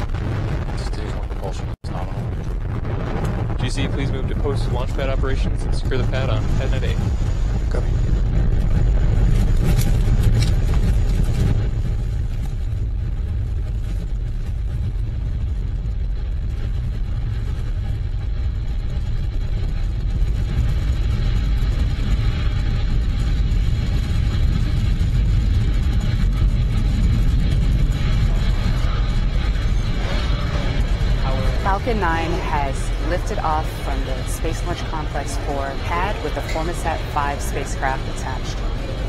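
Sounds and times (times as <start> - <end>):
rocket engines rumbling with crackle: 0.0 - 39.0.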